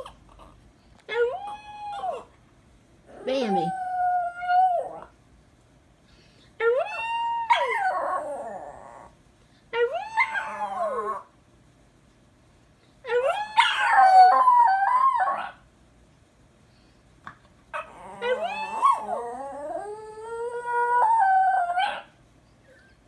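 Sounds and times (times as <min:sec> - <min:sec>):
small dog howling: 0:01.1 - 0:02.3, 0:03.1 - 0:05.1, 0:06.6 - 0:09.2, 0:09.8 - 0:11.3, 0:13.1 - 0:15.6, 0:17.7 - 0:22.1.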